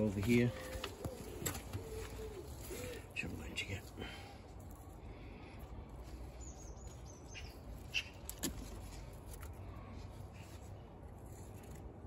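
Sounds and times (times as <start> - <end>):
small birds chirping: 5.2 - 8.4.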